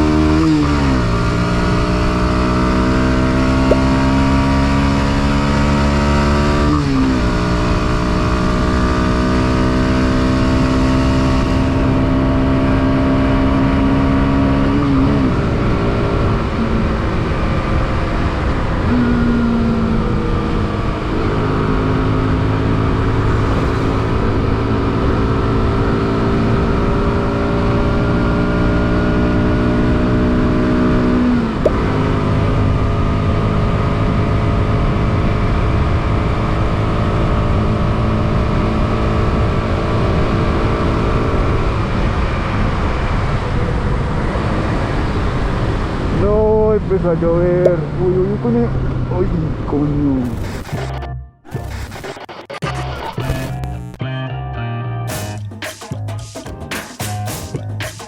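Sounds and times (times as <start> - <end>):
motorcycle engine shifting gears: 0.0 - 46.6
wind and road noise: 0.0 - 51.1.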